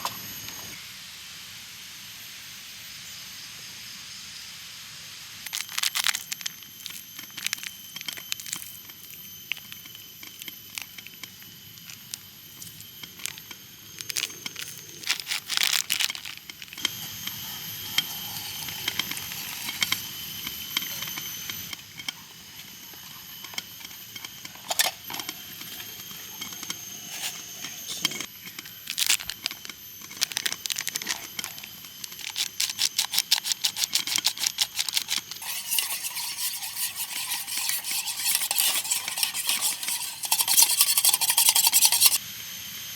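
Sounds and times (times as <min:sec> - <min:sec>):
spoon stirring in a pot: 0:32.1 - 0:42.2
metal pot and utensils clinking: 0:33.7 - 0:42.2.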